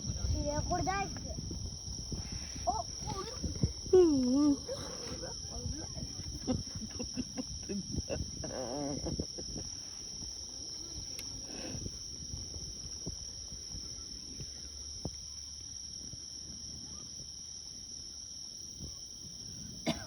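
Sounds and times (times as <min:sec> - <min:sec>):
crickets chirping: 0:00.0 - 0:20.0
faint ticks: 0:11.0 - 0:11.5.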